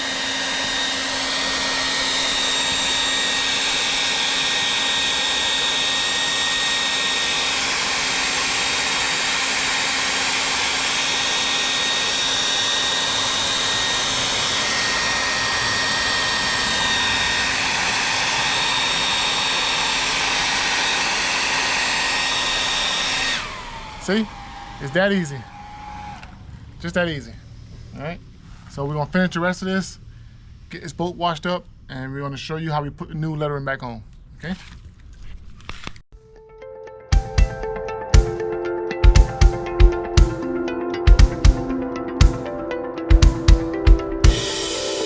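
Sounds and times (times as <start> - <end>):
hair dryer blowing with whine: 0.0 - 26.6, 41.1 - 45.0.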